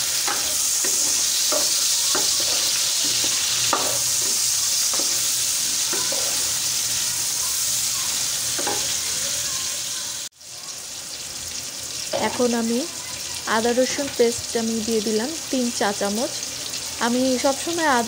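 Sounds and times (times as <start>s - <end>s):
vegetables sizzling in hot oil: 0.0s - 18.0s
wooden spatula scraping pot: 0.2s - 6.6s.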